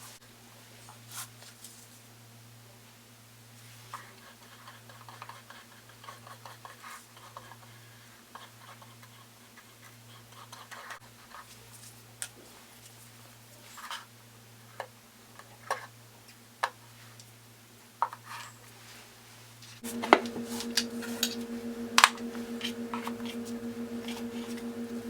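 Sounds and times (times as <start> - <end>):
low electrical hum: 19.8 - 25.0.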